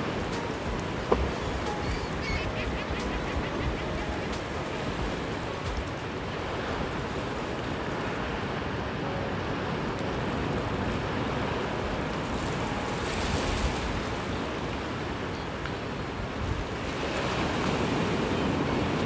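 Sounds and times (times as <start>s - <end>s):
ocean surf washing on shore: 0.0s - 19.0s
wind rumbling on microphone: 0.0s - 19.0s.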